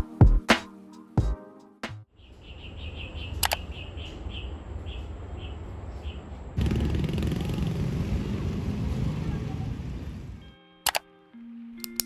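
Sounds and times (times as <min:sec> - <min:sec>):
bird chirping: 0:02.1 - 0:07.8
sharp click: 0:03.4 - 0:03.6.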